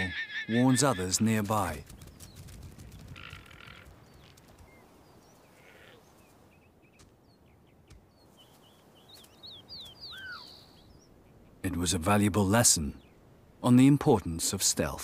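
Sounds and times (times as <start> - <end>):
low wind-like background: 0.0 - 15.0
shrill animal alarm calls: 5.5 - 6.1, 10.0 - 10.7.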